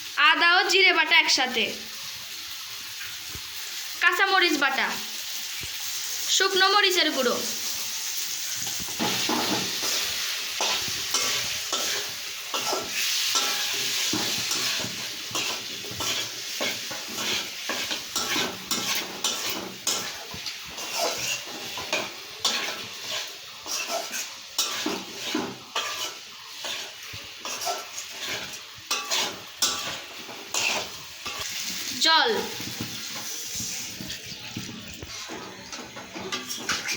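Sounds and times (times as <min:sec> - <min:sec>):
vegetables sizzling in hot oil: 0:00.0 - 0:36.9
spatula scraping a pan: 0:07.6 - 0:31.8, 0:32.5 - 0:36.9.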